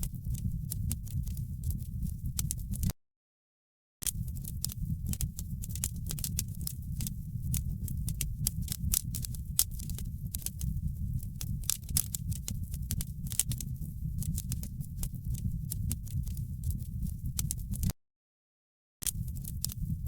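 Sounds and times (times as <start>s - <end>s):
low rumble of flames: 0.0s - 2.9s, 4.1s - 17.9s, 19.1s - 20.0s
wood fire crackling and popping: 4.0s - 17.9s, 19.0s - 20.0s.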